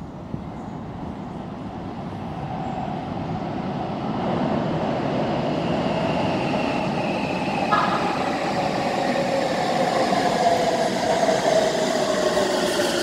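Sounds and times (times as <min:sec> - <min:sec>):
electric train rumbling in tunnel: 0:00.0 - 0:13.0
steady train whine: 0:00.0 - 0:13.0.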